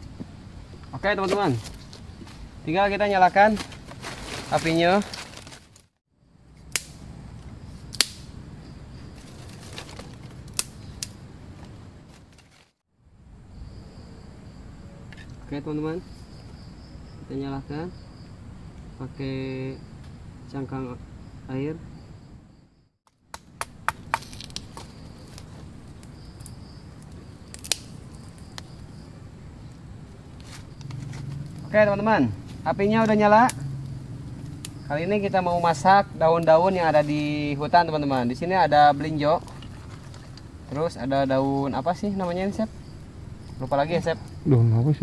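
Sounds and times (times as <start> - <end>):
burning twigs popping: 0.0 - 2.5, 6.6 - 8.4, 9.0 - 12.8, 23.0 - 44.4
faint insects singing: 0.0 - 5.6, 6.2 - 23.0, 23.6 - 45.0
wood fire crackling: 6.6 - 12.8, 23.1 - 44.5.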